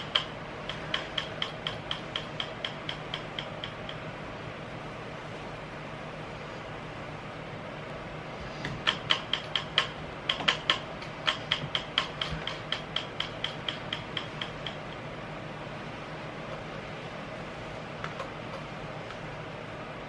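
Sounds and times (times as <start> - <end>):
ratchet-like mechanical clicks: 0.0 - 4.0, 8.8 - 15.0.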